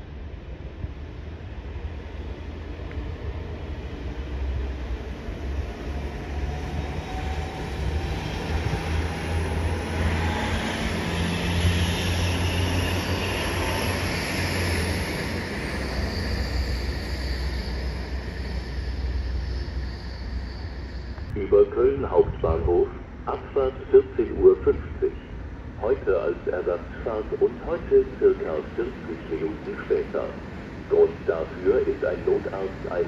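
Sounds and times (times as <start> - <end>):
train wheels rumbling on rails: 0.0 - 24.1
faint gliding whine: 12.2 - 33.0.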